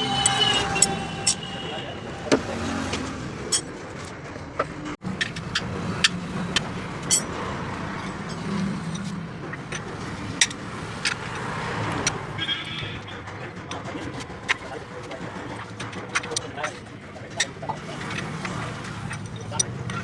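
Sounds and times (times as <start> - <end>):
traffic noise with low hum: 0.0 - 20.0
sharp metallic clicks: 5.1 - 20.0.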